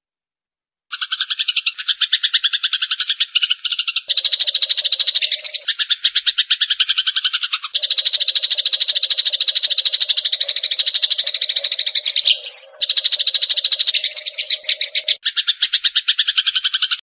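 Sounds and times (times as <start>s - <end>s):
pulsed bird trilling calls: 0.9s - 17.0s
lower pulsed call: 7.8s - 15.2s.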